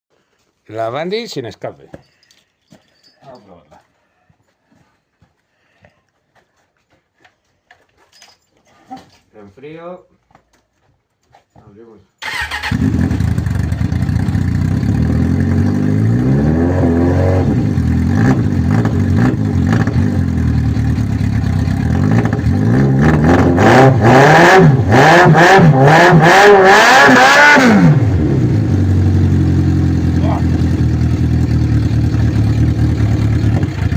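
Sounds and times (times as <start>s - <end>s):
motorcycle engine revving and idling: 12.2s - 33.9s.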